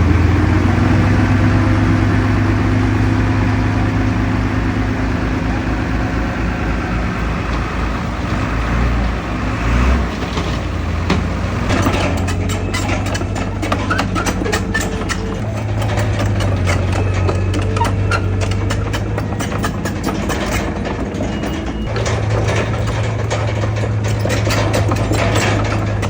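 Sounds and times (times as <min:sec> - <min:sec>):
heavy diesel engine running: 0:00.0 - 0:26.0
metallic clanks and knocks: 0:10.0 - 0:26.0.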